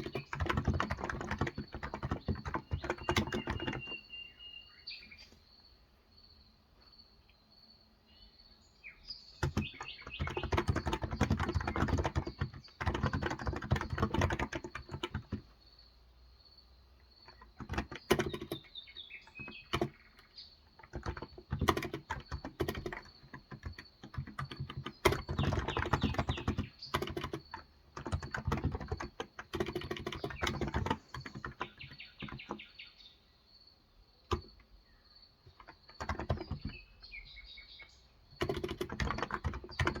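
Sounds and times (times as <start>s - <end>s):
keyboard typing: 0.0s - 4.1s, 9.4s - 15.5s, 17.2s - 32.6s, 34.2s - 34.8s, 35.4s - 37.1s, 38.3s - 40.0s
birds chirping: 0.0s - 40.0s.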